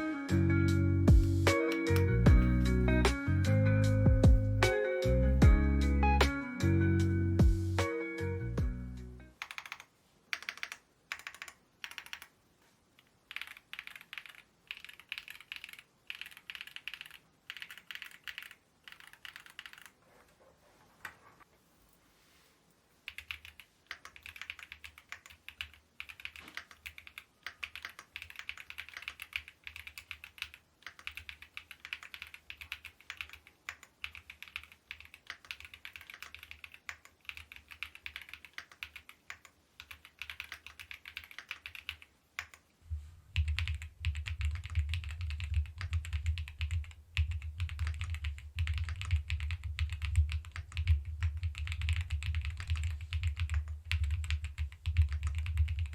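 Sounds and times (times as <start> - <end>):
mechanical keyboard typing: 9.4 - 12.4, 13.0 - 20.0, 23.1 - 42.6, 43.4 - 55.9.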